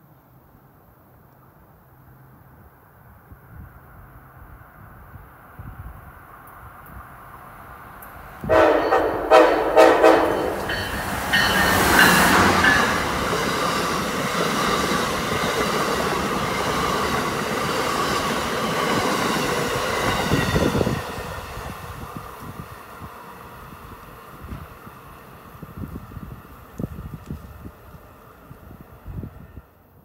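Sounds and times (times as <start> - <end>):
train wheels clattering on rail: 8.0 - 21.3
train horn blasts: 8.4 - 10.9.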